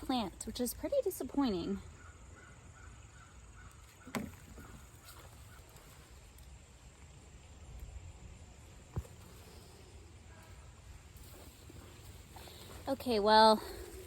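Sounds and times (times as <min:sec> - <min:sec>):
scraping and rustling of soil: 0:03.8 - 0:14.0.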